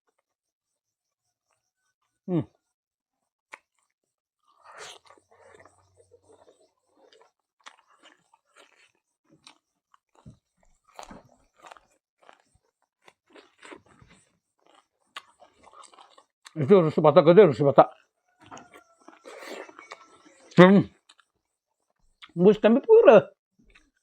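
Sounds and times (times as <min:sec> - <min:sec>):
person chewing and crunching food: 0:03.5 - 0:16.8, 0:17.8 - 0:22.4, 0:23.6 - 0:24.0.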